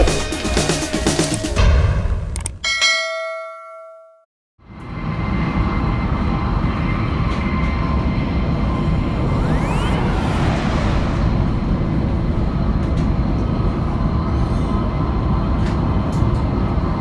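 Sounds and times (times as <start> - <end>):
high-speed train rumbling: 4.7 - 17.0.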